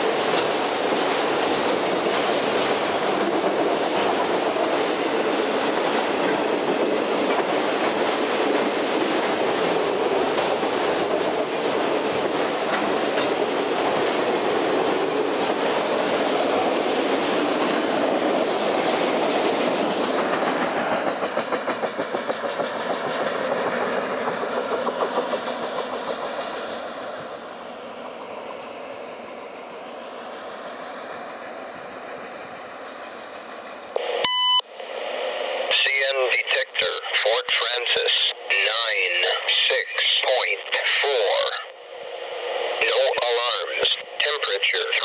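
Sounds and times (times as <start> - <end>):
train wheels clattering on rail: 0.0 - 34.0.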